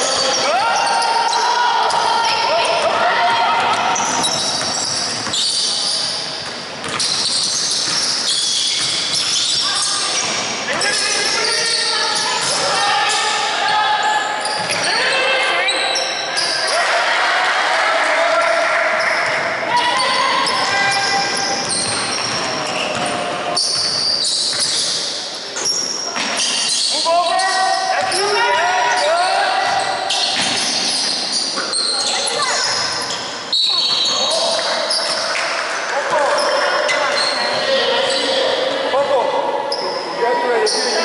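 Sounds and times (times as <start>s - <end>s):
sneakers squeaking on court: 0.0s - 13.3s, 14.0s - 16.8s, 19.0s - 35.4s, 36.1s - 38.7s
echoing noise of play: 0.0s - 41.0s
basketball bouncing on court: 1.8s - 5.8s, 6.4s - 11.2s, 14.6s - 14.9s, 19.0s - 25.0s, 28.0s - 28.3s, 29.6s - 31.1s.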